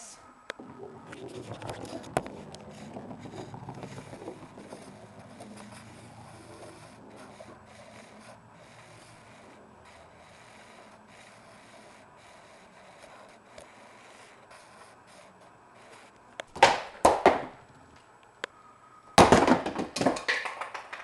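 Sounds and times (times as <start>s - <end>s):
handling noise scraping and rubbing: 1.0s - 8.4s.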